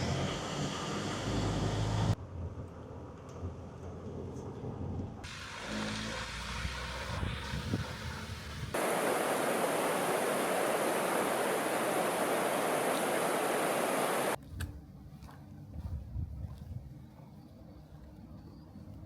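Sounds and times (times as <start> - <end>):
flowing water rushing: 8.8 - 14.4.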